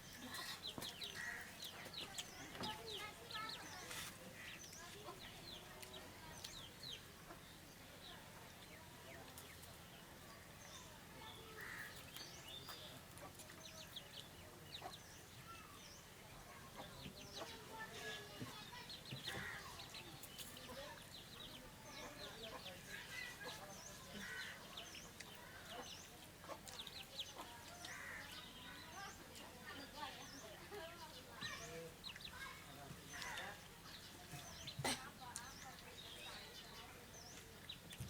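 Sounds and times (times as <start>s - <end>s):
chickens clucking faintly: 0.0s - 38.0s.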